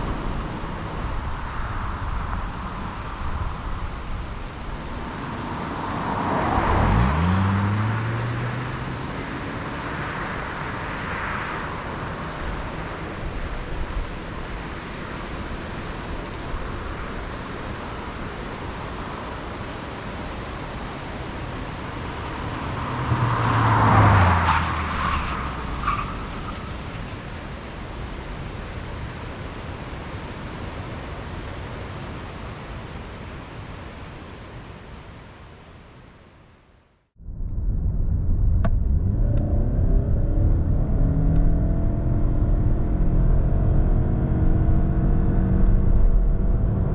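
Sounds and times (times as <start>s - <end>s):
road and tyre noise: 0.0s - 46.9s.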